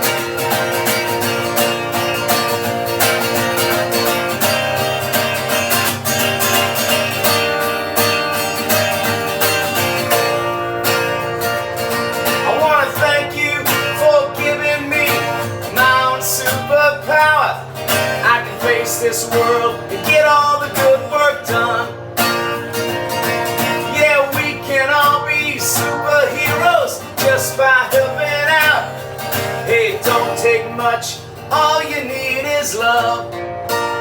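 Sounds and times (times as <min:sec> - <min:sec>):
acoustic guitar strumming: 0:00.0 - 0:34.0
person singing: 0:12.4 - 0:22.0.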